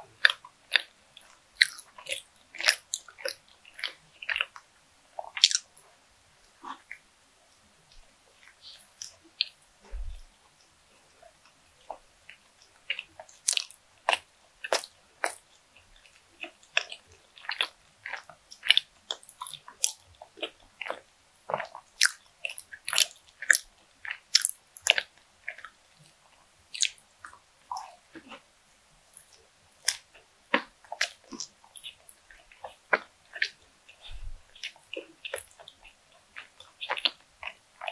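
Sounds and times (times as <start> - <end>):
chewing soft bread: 0.0 - 37.9
low thump: 9.9 - 10.3
wet mouth clicks and smacks: 11.9 - 15.4, 16.0 - 28.4, 29.2 - 37.9.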